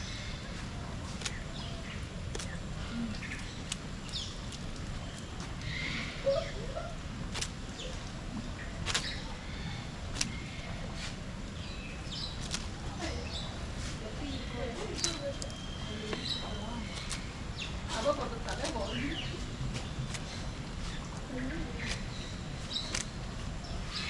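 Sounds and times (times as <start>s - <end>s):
bird chirps and calls: 0.0s - 24.0s
low background rumble: 0.0s - 24.0s.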